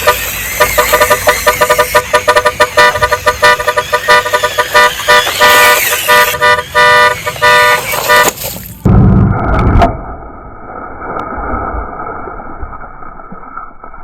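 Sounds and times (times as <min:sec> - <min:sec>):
truck horn honking: 0:00.0 - 0:09.2
steady rumbling noise: 0:00.0 - 0:14.0.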